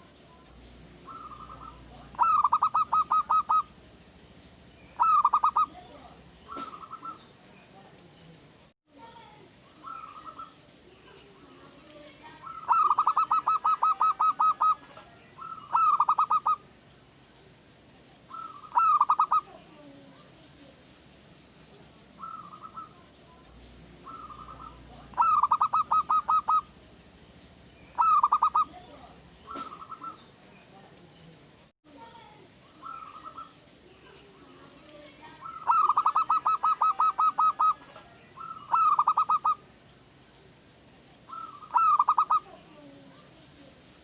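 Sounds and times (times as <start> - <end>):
dove cooing: 0.0 - 3.9, 5.0 - 7.3, 9.7 - 16.7, 18.2 - 20.1, 22.2 - 30.3, 32.7 - 39.6, 41.2 - 43.7.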